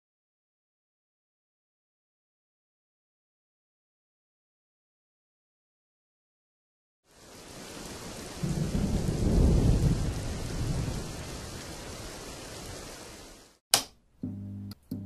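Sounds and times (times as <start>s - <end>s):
steady rain: 7.0s - 13.6s
thunder rolling: 8.1s - 13.0s
sharp click: 13.7s - 14.0s.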